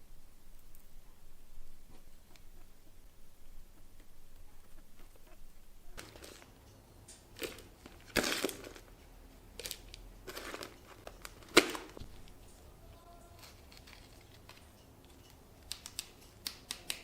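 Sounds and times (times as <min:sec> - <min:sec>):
crinkling crunching handling noises: 0:03.8 - 0:17.0.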